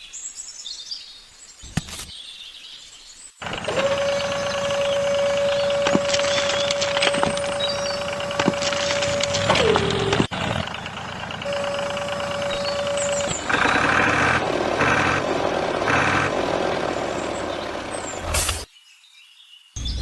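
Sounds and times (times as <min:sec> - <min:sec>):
truck engine running: 0:03.4 - 0:18.7
reversing alarm beeps: 0:03.9 - 0:10.3, 0:11.4 - 0:13.5.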